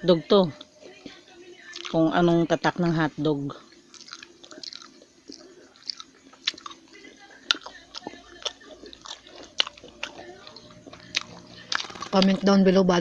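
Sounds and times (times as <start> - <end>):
person chewing food: 0.5 - 2.0, 3.6 - 12.4.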